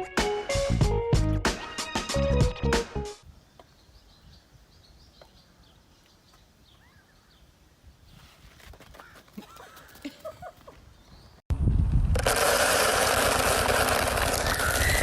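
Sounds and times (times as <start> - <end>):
background music: 0.0 - 3.2
faint outdoor ambience: 3.2 - 11.4
bird chirps: 3.5 - 7.5.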